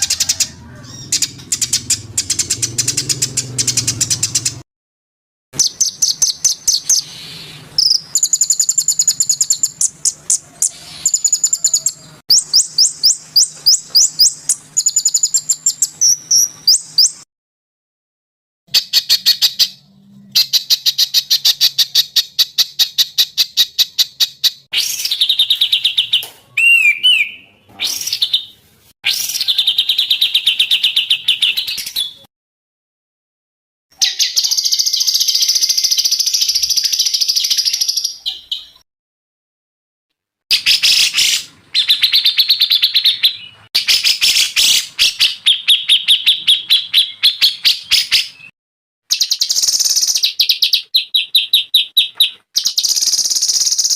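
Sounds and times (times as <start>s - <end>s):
songbirds trilling: 0.0s - 4.6s, 5.6s - 17.2s.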